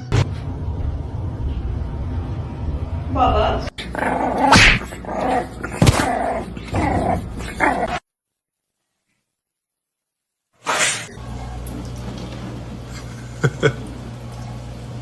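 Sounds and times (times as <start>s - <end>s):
animal growling and crying out: 3.7s - 8.0s.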